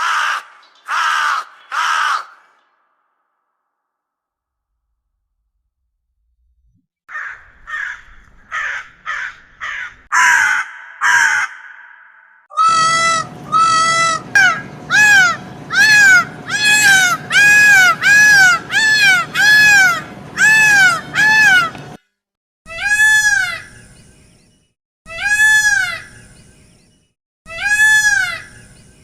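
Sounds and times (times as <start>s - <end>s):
crow cawing: 0.0s - 2.7s, 7.1s - 21.8s
peacock calling: 7.1s - 22.0s, 22.7s - 23.8s, 25.1s - 26.3s, 27.5s - 28.8s.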